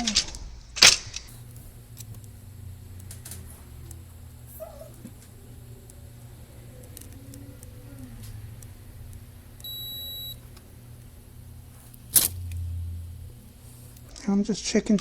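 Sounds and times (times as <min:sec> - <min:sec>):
low hum: 0:00.0 - 0:15.0
multimeter continuity beep: 0:08.6 - 0:14.1.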